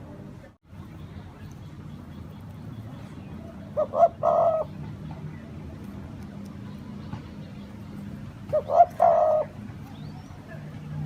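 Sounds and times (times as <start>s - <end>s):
dove cooing: 3.5s - 4.8s, 8.5s - 9.7s.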